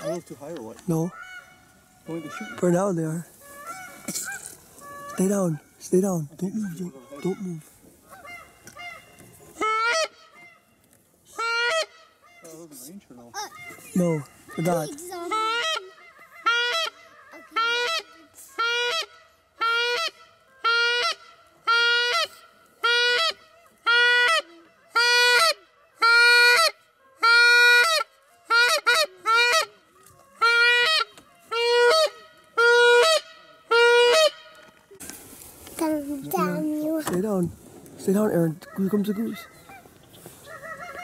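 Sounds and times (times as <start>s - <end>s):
goose call honks: 0.9s - 10.7s, 11.3s - 12.9s, 13.5s - 34.6s.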